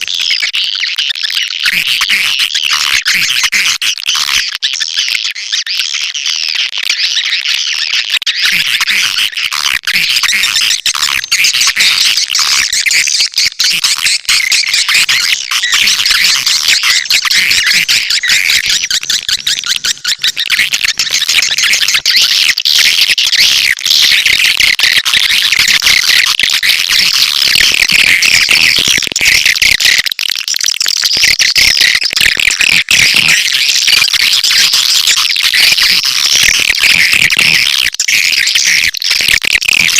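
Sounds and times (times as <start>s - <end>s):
swiftlets chirping and twittering: 0.0s - 39.9s.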